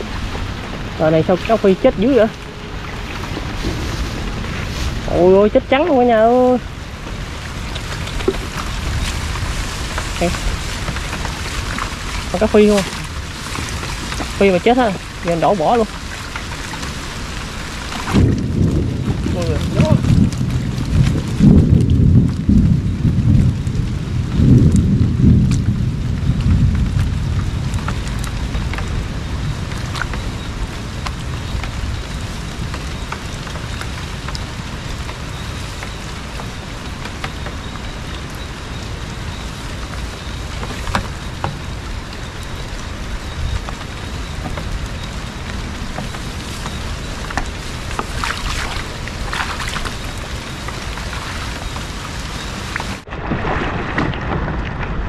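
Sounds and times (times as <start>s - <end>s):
low rumble: 0.0s - 32.7s
steady rain: 0.0s - 55.0s.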